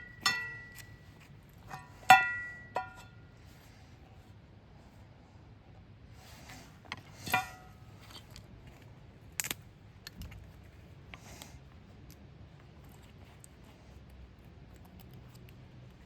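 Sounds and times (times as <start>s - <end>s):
ringing clink: 0.0s - 1.1s, 1.7s - 3.2s.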